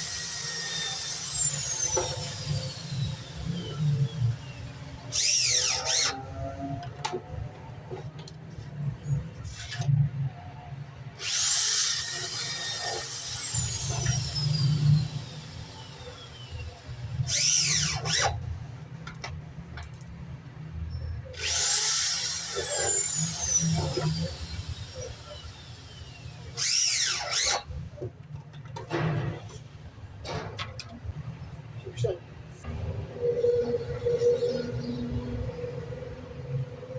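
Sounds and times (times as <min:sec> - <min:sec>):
power tool motor whining: 0:00.0 - 0:06.8, 0:11.2 - 0:18.4, 0:21.3 - 0:27.8.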